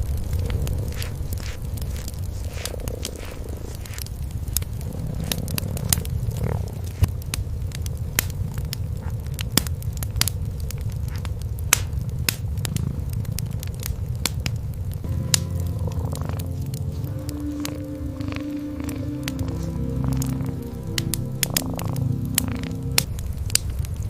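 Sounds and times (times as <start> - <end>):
cat purring: 0.0 - 7.2, 12.0 - 13.8, 15.1 - 23.1
wood fire crackling: 0.0 - 24.0.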